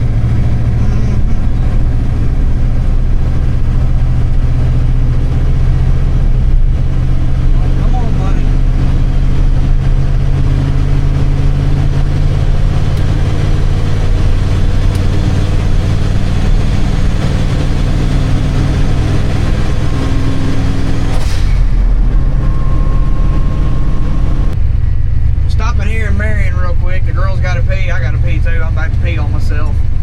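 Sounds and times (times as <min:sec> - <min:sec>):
road noise: 0:00.0 - 0:30.0
truck engine drone: 0:00.0 - 0:30.0
short whoosh: 0:16.2 - 0:26.1.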